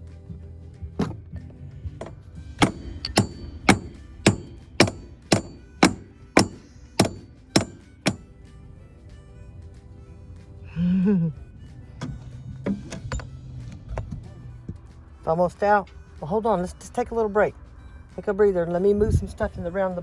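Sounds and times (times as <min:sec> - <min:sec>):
hammer blows: 0:02.0 - 0:08.4.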